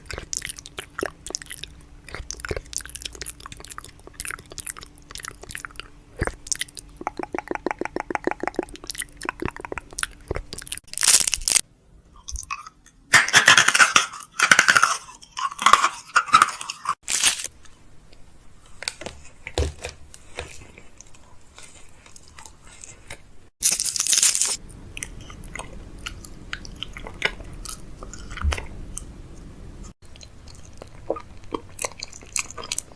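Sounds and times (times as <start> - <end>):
plastic wrappers crinkling: 10.7 - 11.6, 13.5 - 17.5, 23.6 - 24.6.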